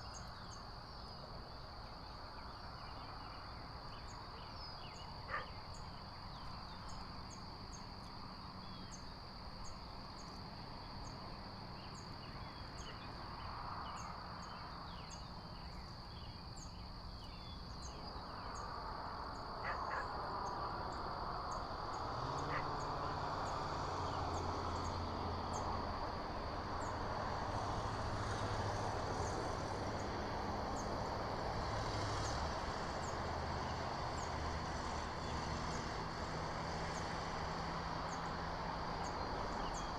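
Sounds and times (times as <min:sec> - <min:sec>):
vehicle engine rumble: 0:00.0 - 0:39.9.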